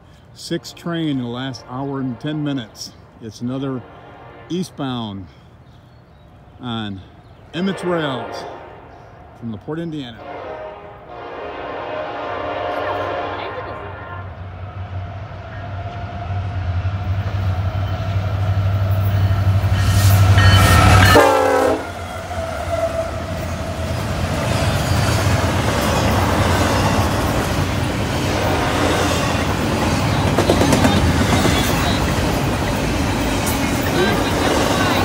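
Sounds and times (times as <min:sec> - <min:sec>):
diesel locomotive engine rumble: 0:00.0 - 0:35.0
freight cars rattling on track: 0:23.3 - 0:35.0.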